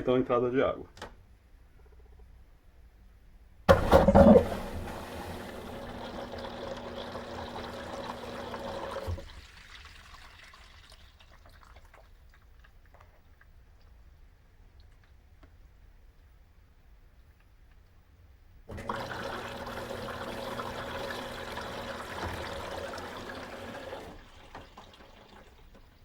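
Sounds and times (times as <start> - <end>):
water rushing into washer tub: 3.7 - 12.4, 18.7 - 26.0
water trickling and dripping: 5.5 - 14.0, 18.7 - 26.0.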